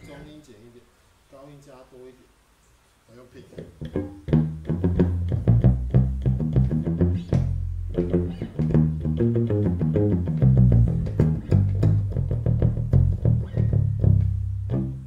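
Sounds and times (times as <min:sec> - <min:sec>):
electric bass short punchy notes: 0:03.6 - 0:15.0.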